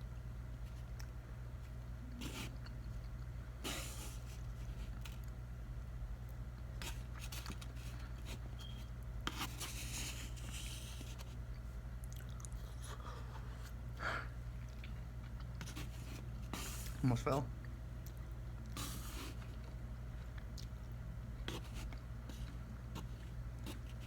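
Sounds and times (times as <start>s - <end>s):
low electrical hum: 0.0s - 24.0s
chewing and mouth clicks: 12.0s - 12.9s, 14.6s - 15.8s, 19.5s - 21.0s.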